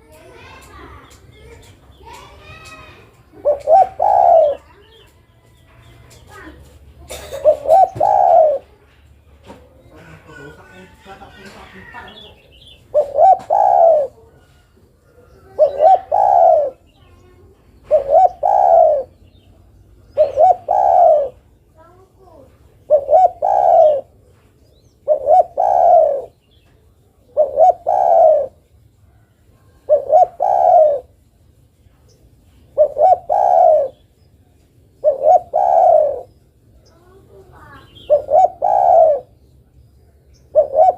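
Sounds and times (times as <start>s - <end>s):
dove cooing: 2.1s - 5.1s, 6.4s - 8.8s, 11.7s - 17.0s, 17.8s - 19.2s, 20.0s - 21.5s, 22.8s - 26.4s, 27.2s - 31.2s, 32.6s - 34.1s, 34.9s - 39.4s, 40.5s - 40.9s.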